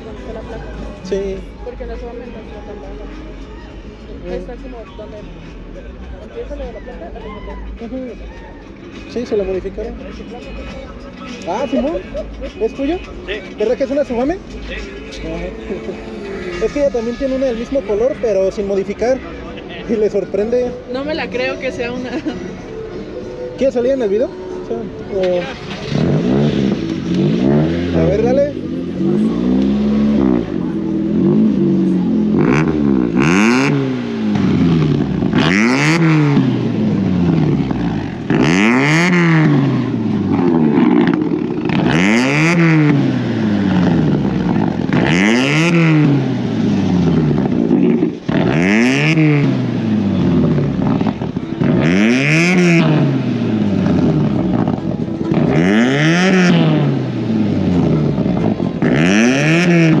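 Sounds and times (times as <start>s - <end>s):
car engine revving: 23.2s - 60.0s.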